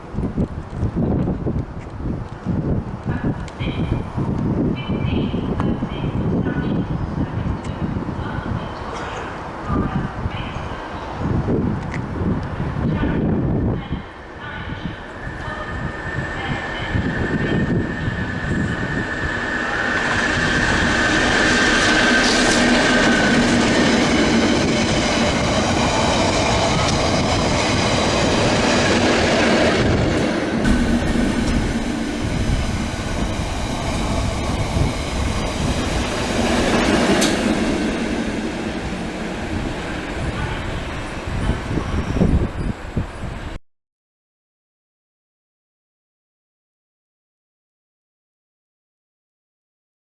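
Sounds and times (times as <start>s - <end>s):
diesel train engine: 14.7s - 42.4s
high steady squeal: 14.9s - 22.5s, 30.6s - 43.3s.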